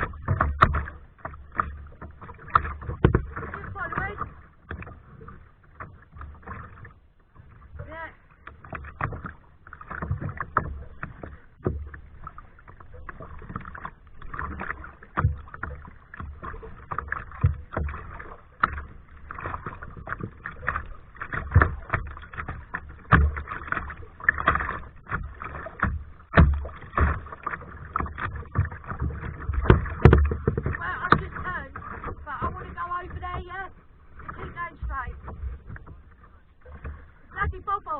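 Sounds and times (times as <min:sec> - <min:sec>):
kayak paddle splashing: 0:00.0 - 0:37.9
paddle low knock: 0:00.0 - 0:37.9.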